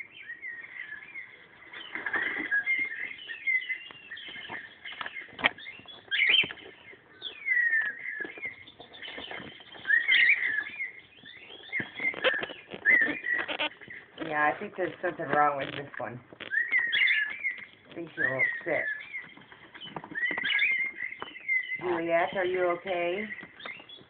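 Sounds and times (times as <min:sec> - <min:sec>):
birds chirping and whistling: 0:00.0 - 0:24.0
sharp clicks: 0:11.8 - 0:16.6.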